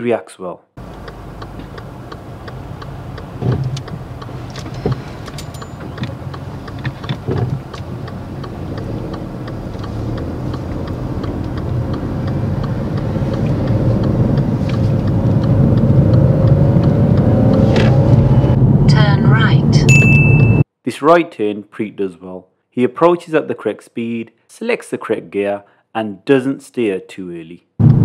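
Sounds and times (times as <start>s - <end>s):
light ticking: 0.8s - 17.6s
car engine running: 0.8s - 20.6s, 27.8s - 28.0s.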